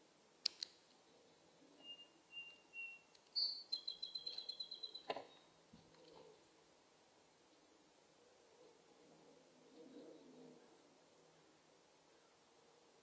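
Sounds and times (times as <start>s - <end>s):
sharp clicks: 0.4s - 0.8s
songbird whistles and trill: 1.8s - 5.4s.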